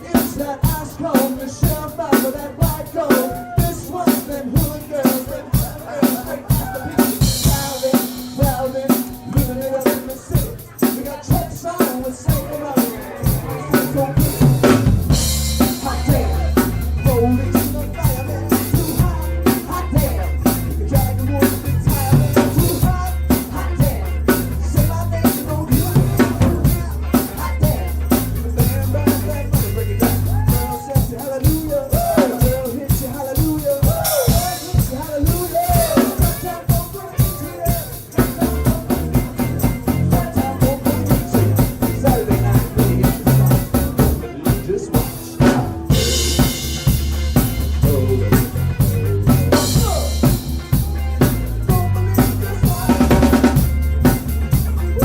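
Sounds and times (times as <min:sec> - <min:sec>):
drum kit with rimshots: 0:00.0 - 0:55.0
live funk band playing: 0:00.0 - 0:55.0
heavy bass line: 0:12.2 - 0:31.0, 0:33.8 - 0:55.0.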